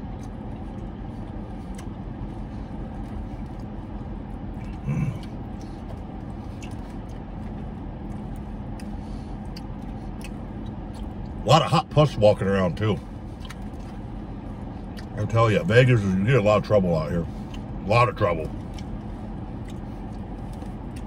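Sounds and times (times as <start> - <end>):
air-conditioning fan hum: 0.0 - 21.0
car engine idling: 0.0 - 21.0.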